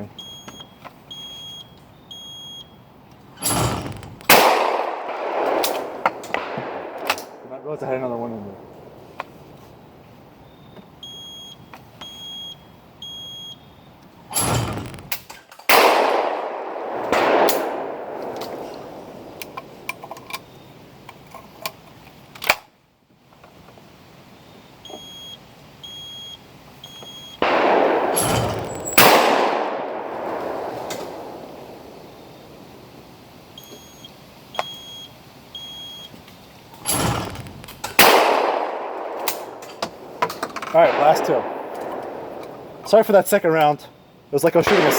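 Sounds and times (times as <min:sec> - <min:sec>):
short electronic beeps: 0:00.0 - 0:02.8, 0:10.5 - 0:13.9, 0:24.4 - 0:27.4, 0:28.2 - 0:29.0, 0:33.6 - 0:36.1
loud shotgun shots: 0:03.4 - 0:09.5, 0:14.3 - 0:19.9, 0:27.4 - 0:32.9, 0:36.8 - 0:43.0, 0:44.6 - 0:44.9
short high electronic beeps: 0:33.6 - 0:36.1.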